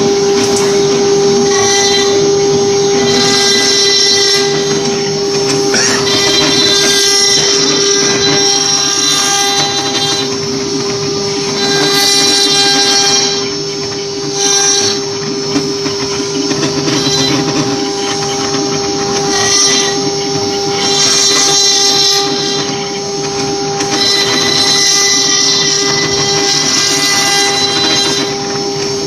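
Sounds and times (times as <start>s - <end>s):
router spindle whine: 0.0s - 29.0s
bit cutting wood: 1.4s - 10.5s.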